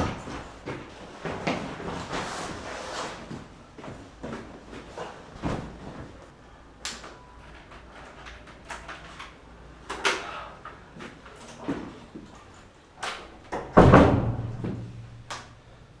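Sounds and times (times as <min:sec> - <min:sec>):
door knocks and clunks: 0:13.5 - 0:14.9.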